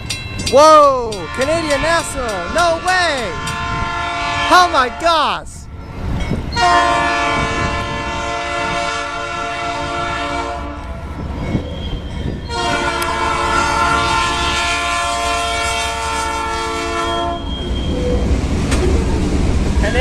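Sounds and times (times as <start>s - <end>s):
low rumble of passing train: 0.0s - 5.0s, 5.6s - 20.0s
locomotive horn chord blasts: 1.1s - 5.2s, 6.6s - 11.0s, 12.5s - 17.5s.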